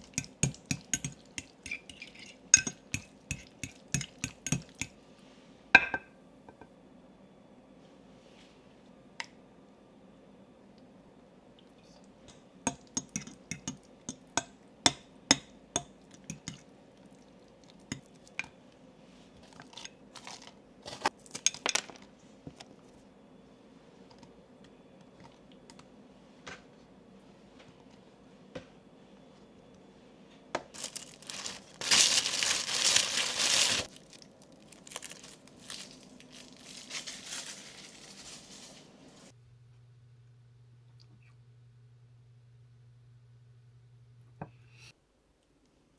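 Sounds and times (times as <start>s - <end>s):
packaging crinkling: 30.7s - 39.3s.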